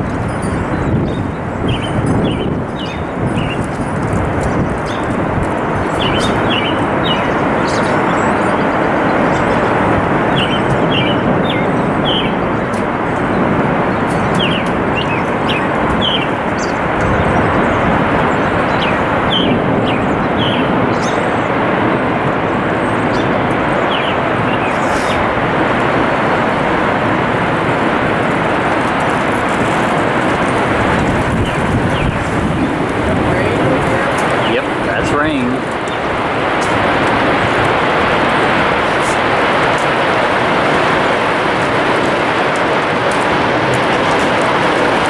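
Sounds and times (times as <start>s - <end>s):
heavy hail downpour: 0.0s - 45.0s
bird chirping: 0.3s - 21.6s, 22.4s - 25.3s.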